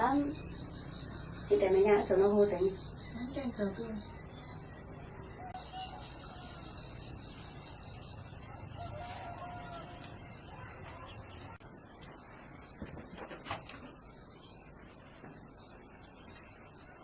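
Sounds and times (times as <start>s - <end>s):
crickets chirring: 0.0s - 17.0s
rooster crowing faintly: 5.0s - 7.1s, 8.4s - 11.6s.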